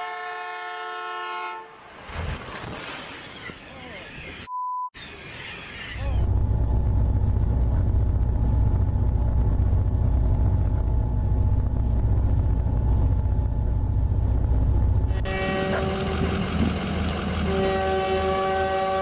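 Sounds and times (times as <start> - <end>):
train rumbling: 6.0 - 19.0.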